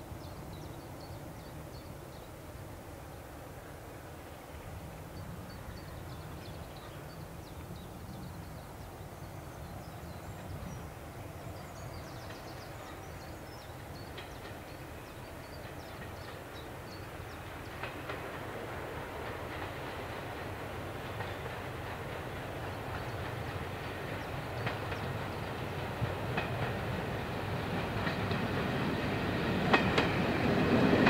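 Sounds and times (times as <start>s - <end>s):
train wheels on rails: 9.3s - 31.0s.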